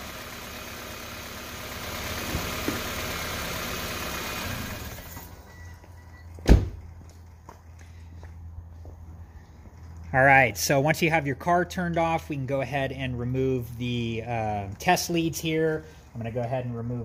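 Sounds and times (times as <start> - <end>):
car engine idling: 0.0 - 17.0
loud thump: 6.4 - 6.8.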